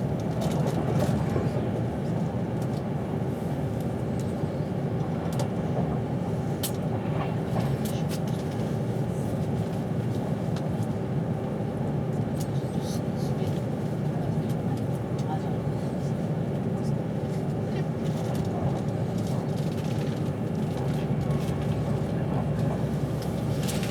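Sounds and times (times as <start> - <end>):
train rumble from inside carriage: 0.0 - 23.9.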